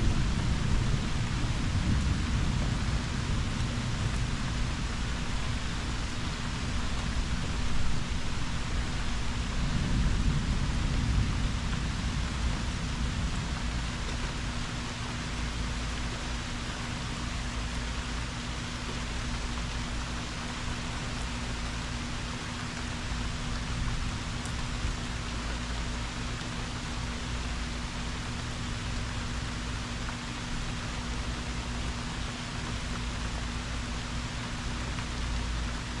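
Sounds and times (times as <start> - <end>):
low rumbling thunder: 0.0 - 16.0
steady rain: 0.0 - 36.0.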